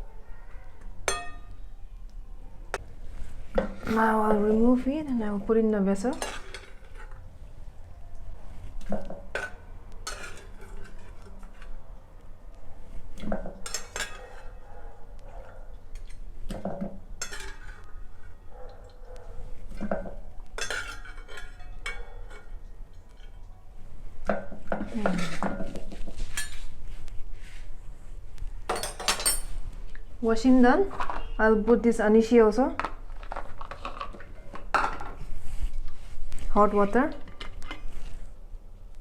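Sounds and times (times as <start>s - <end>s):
metal pots and spoon clattering: 1.1s - 1.5s, 5.9s - 7.2s, 8.8s - 11.7s, 13.2s - 14.6s, 15.9s - 18.0s, 19.8s - 23.4s, 24.3s - 26.7s, 28.7s - 29.6s, 33.2s - 35.2s.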